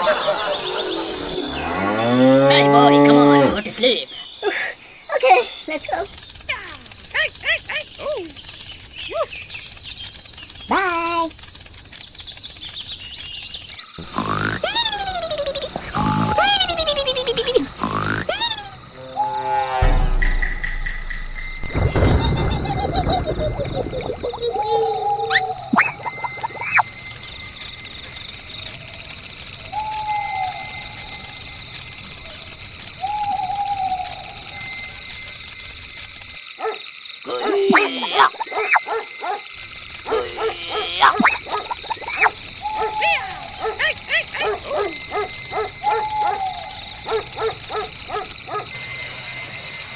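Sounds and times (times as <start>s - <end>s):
animal crying: 14.0s - 19.8s, 24.1s - 26.9s, 40.1s - 49.9s
dog whining and yipping: 40.1s - 48.7s.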